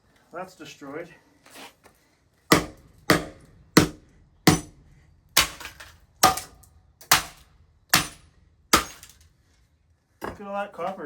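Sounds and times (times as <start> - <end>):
rattle of broken parts: 5.4 - 9.4.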